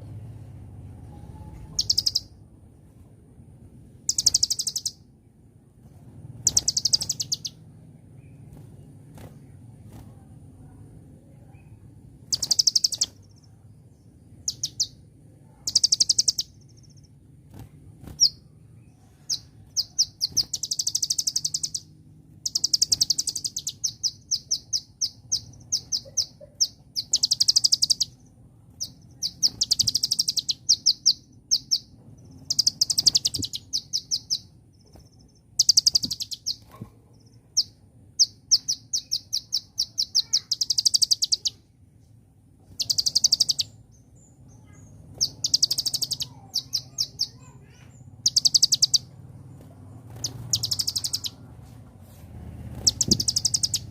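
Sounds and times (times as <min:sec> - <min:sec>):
sunbird sharp chirps: 0:01.3 - 0:02.4, 0:04.0 - 0:05.1, 0:06.4 - 0:09.5, 0:11.6 - 0:41.7, 0:42.7 - 0:51.5, 0:52.6 - 0:53.9
sunbird fast high trills: 0:35.6 - 0:41.7, 0:50.1 - 0:51.5.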